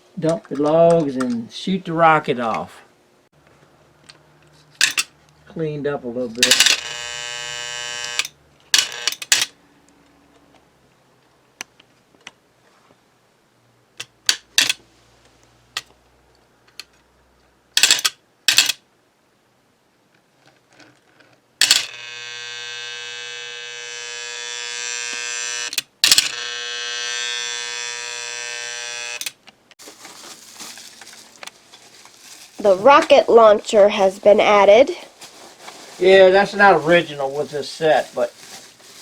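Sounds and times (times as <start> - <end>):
electrical buzzing: 6.5 - 9.3, 21.6 - 29.4.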